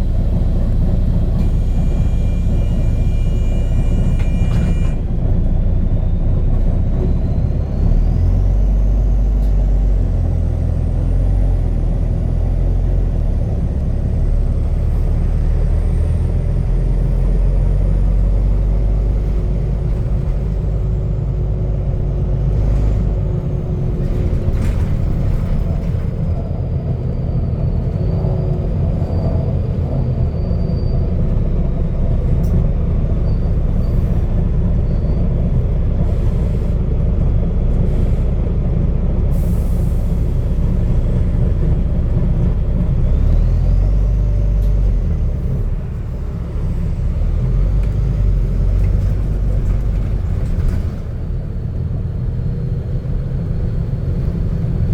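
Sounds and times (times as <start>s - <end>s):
bus diesel engine rumble: 0.0s - 54.9s.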